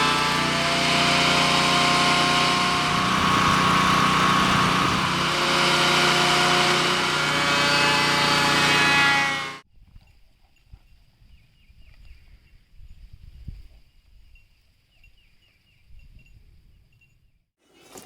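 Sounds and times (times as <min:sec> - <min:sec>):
thickness planer motor whine: 0:00.0 - 0:09.6.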